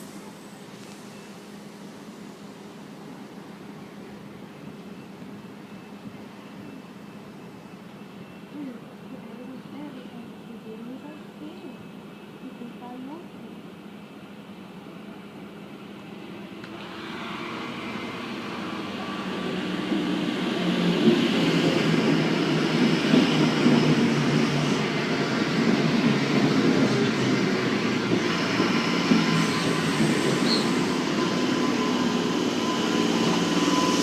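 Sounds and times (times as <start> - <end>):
electric train rumbling: 0.0 - 34.0
wheels squealing: 28.4 - 34.0.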